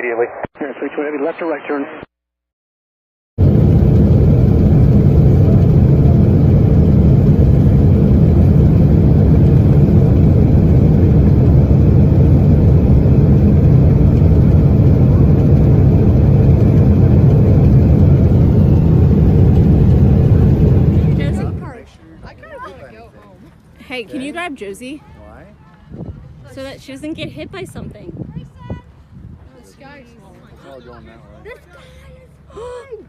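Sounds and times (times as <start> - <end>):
airplane low rumbling: 3.4 - 22.6.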